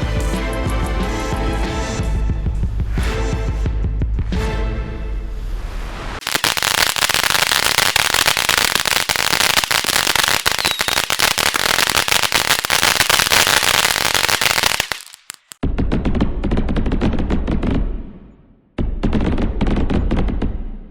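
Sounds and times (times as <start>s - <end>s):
fireworks popping and crackling: 6.2s - 15.6s.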